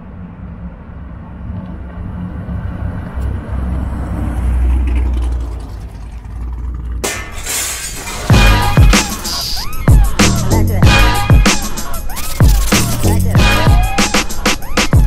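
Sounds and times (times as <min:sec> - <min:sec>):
car exhaust rumble: 0:00.0 - 0:10.9.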